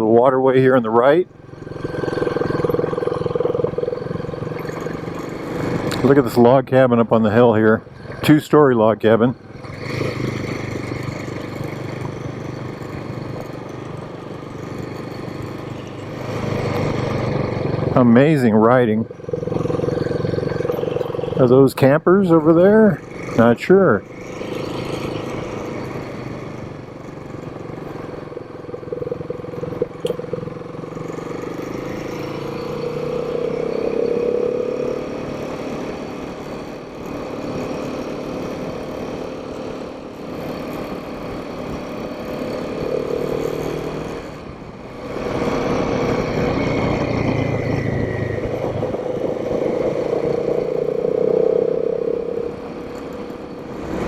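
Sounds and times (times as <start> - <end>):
motorcycle engine running: 0.0 - 54.0
wind noise: 45.2 - 54.0.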